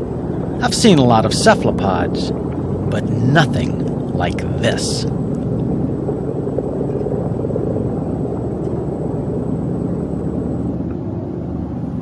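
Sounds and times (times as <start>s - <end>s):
machine rumble: 0.0s - 12.0s
faint high-pitched whine: 0.2s - 5.6s.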